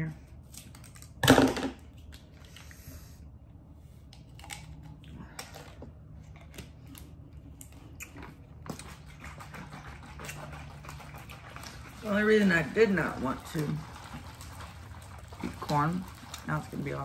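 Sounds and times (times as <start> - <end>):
chewing and lip smacks: 4.2 - 12.0.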